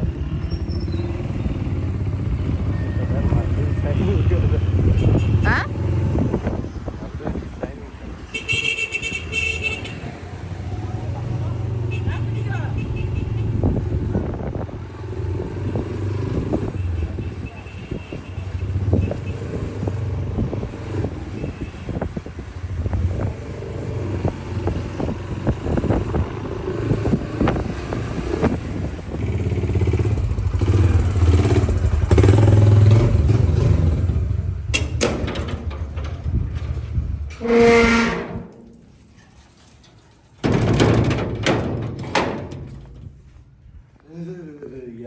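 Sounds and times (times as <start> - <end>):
vehicle engine and road noise: 0.0 - 45.0
rattles and knocks: 34.0 - 43.4.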